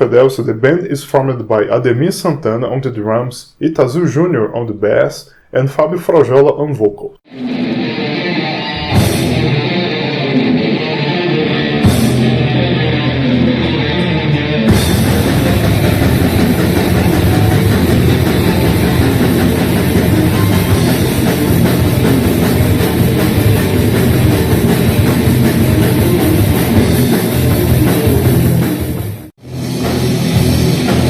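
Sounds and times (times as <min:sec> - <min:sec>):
death metal band playing: 0:07.3 - 0:31.0.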